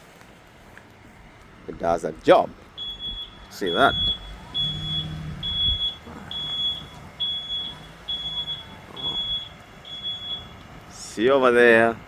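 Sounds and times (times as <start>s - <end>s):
low engine hum: 2.4s - 11.2s
truck reversing alarm beeping: 2.6s - 11.5s.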